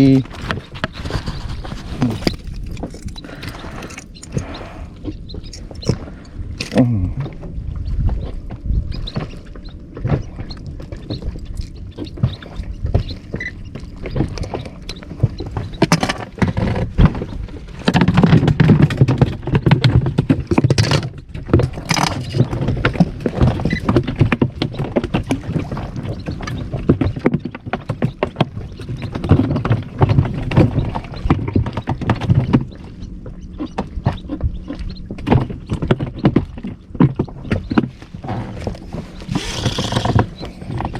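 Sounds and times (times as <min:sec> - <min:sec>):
clicks and knocks: 0:02.0 - 0:04.5.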